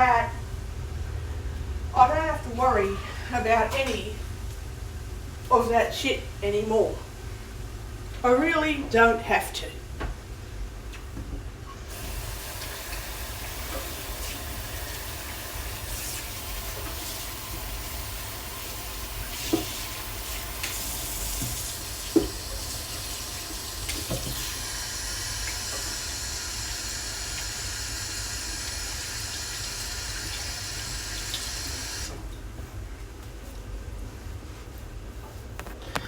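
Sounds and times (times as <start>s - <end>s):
kitchen tap running into sink: 11.9s - 32.2s.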